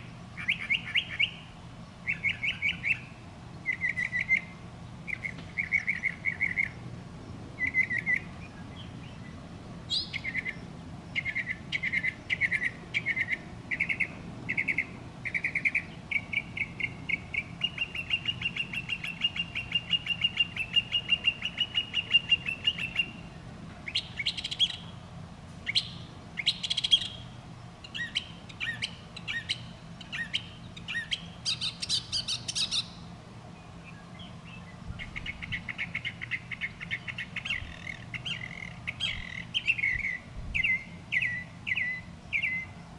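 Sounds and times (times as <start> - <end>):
bird chirping and singing: 0.4 - 4.5, 5.1 - 6.8, 7.6 - 25.0, 25.6 - 42.8.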